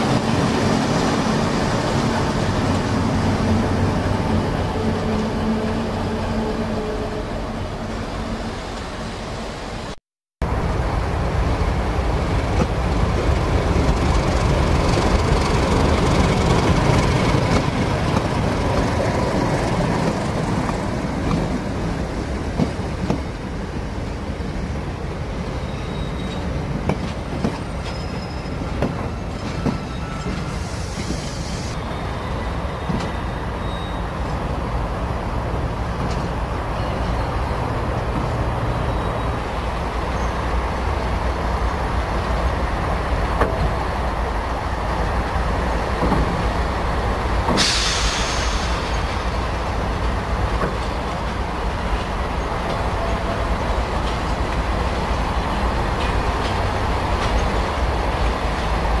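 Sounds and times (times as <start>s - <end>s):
freight train rumble: 0.0s - 59.0s
high wheel squeals: 25.4s - 26.6s, 27.6s - 34.2s.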